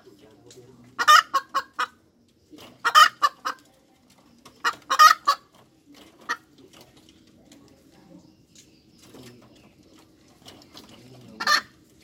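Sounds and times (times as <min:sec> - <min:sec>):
hen clucking and squawking: 0:00.8 - 0:06.9, 0:09.3 - 0:12.0.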